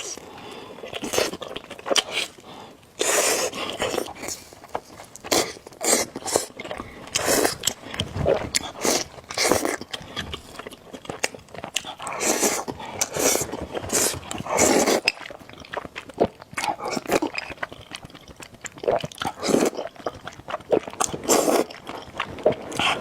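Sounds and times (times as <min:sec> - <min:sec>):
person chewing: 0:00.0 - 0:23.0
person slurping noodles: 0:03.0 - 0:04.4, 0:05.3 - 0:10.6, 0:12.0 - 0:15.1, 0:20.7 - 0:21.8.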